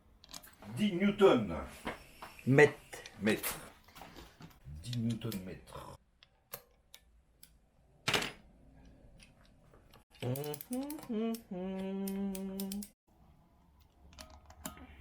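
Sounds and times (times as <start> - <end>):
man vocalizing without words: 10.1 - 12.9.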